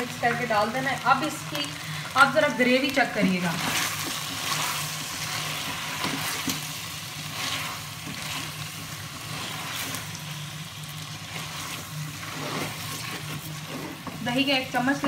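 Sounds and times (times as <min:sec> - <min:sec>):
food sizzling in oil: 0:00.0 - 0:15.0
spatula scraping a pot: 0:03.5 - 0:10.3, 0:11.1 - 0:15.0.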